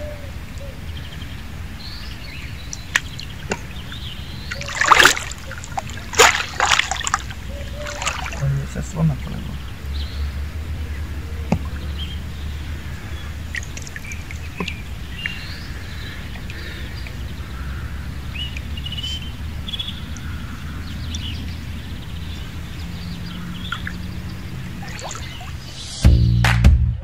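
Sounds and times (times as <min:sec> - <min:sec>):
small birds chirping: 0:00.0 - 0:26.4
steady low rumble: 0:05.3 - 0:20.7.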